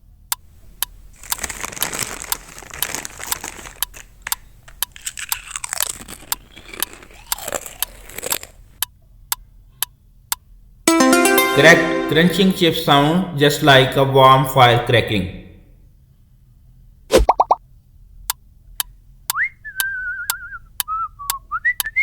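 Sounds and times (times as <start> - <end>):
potato chips being chewed: 1.2 - 8.8.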